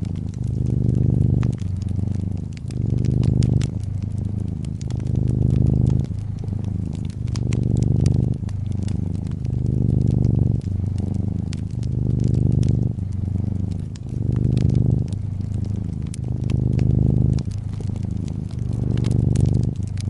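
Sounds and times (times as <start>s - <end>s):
cat purring: 0.0s - 20.0s
wood fire crackling: 0.0s - 20.0s.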